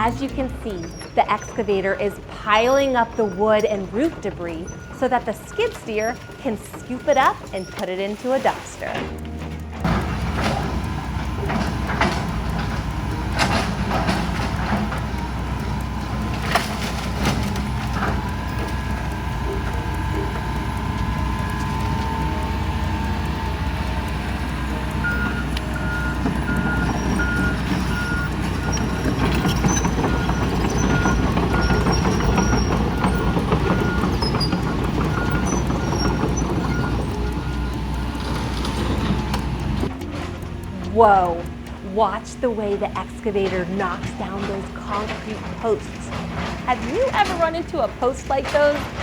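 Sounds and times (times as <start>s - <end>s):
diesel engines running: 0.0s - 49.0s
reversing alarm beeping: 0.0s - 49.0s.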